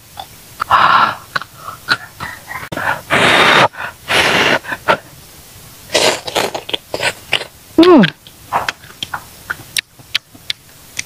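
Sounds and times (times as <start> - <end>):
mouth clicks and smacks: 0.2 - 2.4, 6.0 - 11.0
person breathing hissing breaths: 0.6 - 5.2.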